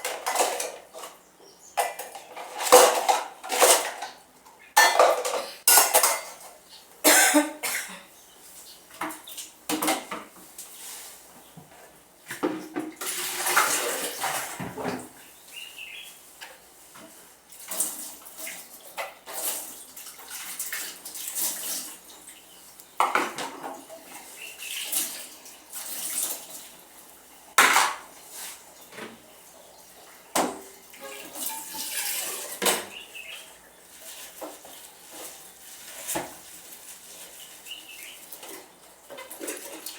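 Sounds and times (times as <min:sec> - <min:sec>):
plates and cutlery clinking: 0:00.0 - 0:01.2, 0:01.8 - 0:04.2, 0:04.8 - 0:06.6, 0:30.4 - 0:33.0
water splashing and sloshing: 0:12.3 - 0:39.9.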